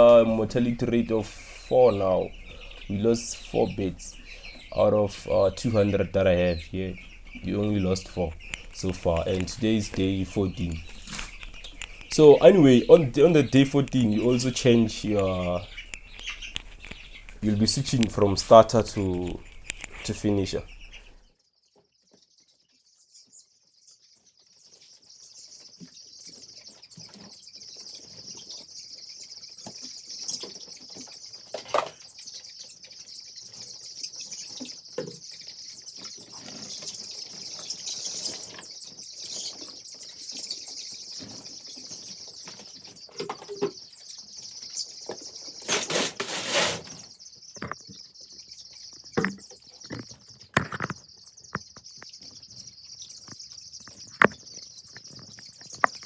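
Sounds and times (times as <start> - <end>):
rustling: 0.0 - 21.3, 44.8 - 47.3
chicks peeping: 0.0 - 56.0.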